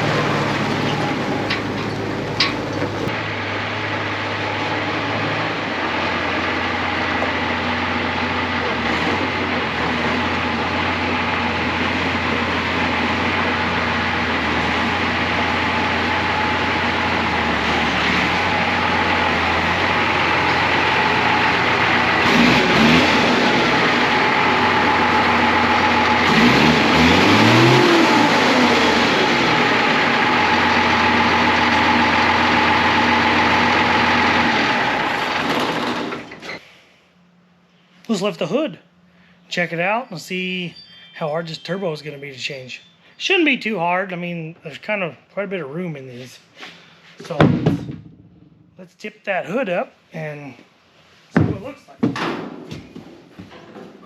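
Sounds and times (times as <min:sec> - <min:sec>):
diesel truck engine idling and revving: 0:00.0 - 0:36.6.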